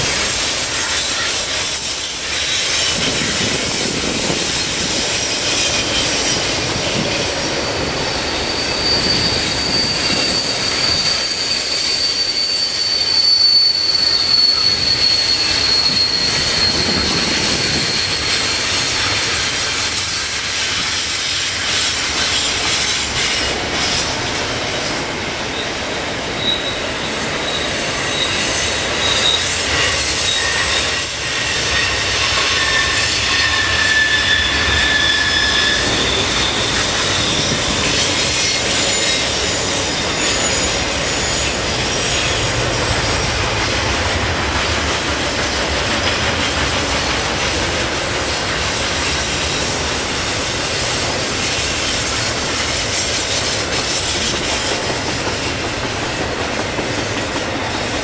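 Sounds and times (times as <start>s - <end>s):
wheel squeal: 0.0s - 44.0s
freight train wheels rumbling: 0.0s - 58.0s.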